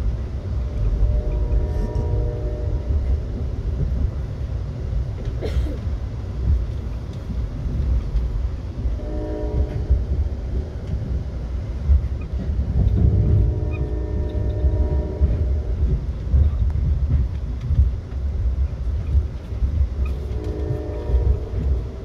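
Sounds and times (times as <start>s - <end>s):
train rumbling on rails: 0.0s - 22.0s
muffled train horn blasts: 0.6s - 3.8s, 8.9s - 10.6s, 12.7s - 16.4s, 20.0s - 22.0s.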